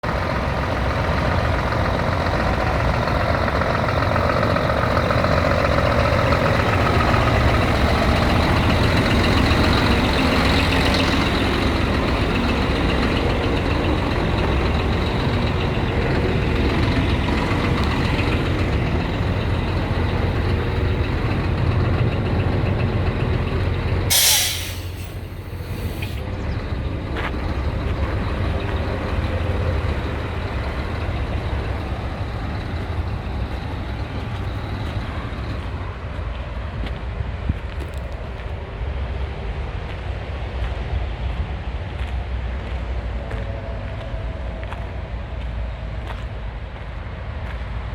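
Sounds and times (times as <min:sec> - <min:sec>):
truck engine running: 0:00.0 - 0:47.9
air brakes hissing: 0:24.1 - 0:26.3.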